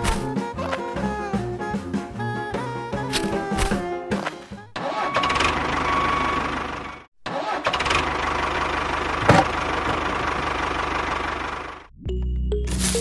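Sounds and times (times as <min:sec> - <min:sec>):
tractor engine chugging: 0:04.8 - 0:11.9.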